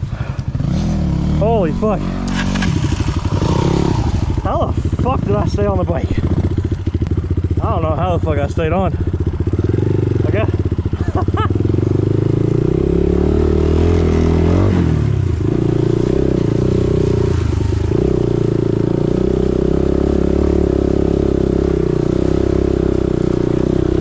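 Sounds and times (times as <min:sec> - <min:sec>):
dirt bike engine running: 0:00.0 - 0:24.0.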